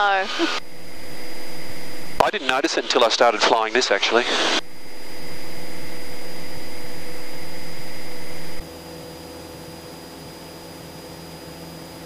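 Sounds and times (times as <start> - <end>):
aircraft engine and propeller droning: 0.0 - 12.0.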